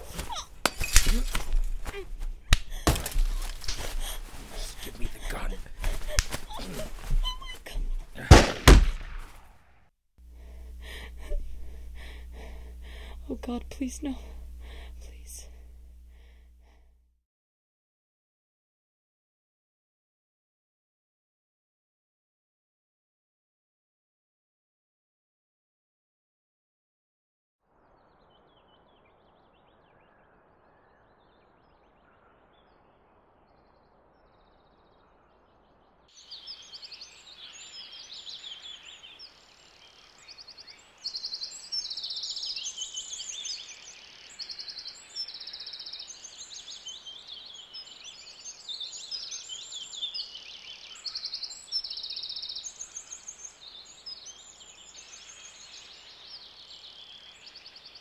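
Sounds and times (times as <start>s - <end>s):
outdoor background noise: 0.0s - 16.9s, 27.7s - 58.0s
songbirds chirping and trilling: 2.7s - 8.6s, 27.8s - 58.0s.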